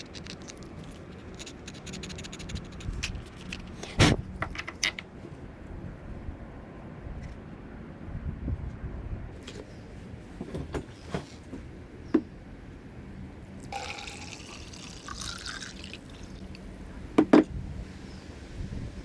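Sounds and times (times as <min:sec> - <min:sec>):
water pouring: 0:13.6 - 0:16.6.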